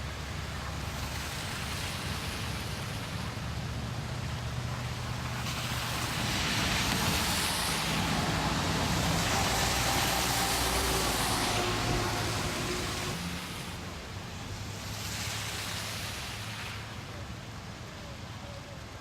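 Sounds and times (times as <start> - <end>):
tyre hiss on road: 0.0 - 17.4
road traffic: 0.0 - 19.0.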